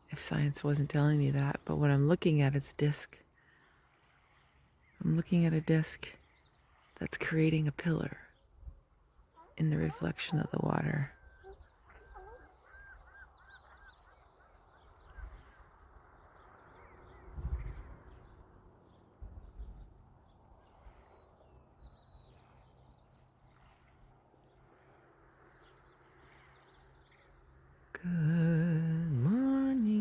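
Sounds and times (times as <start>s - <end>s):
birds calling and chirping: 3.4s - 27.9s
low rumble on microphone: 14.9s - 27.1s.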